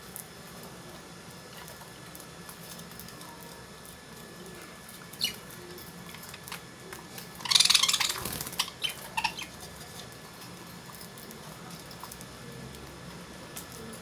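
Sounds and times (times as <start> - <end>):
harsh burst of bird noise: 7.4 - 9.4
lovebirds chirping: 7.4 - 9.6.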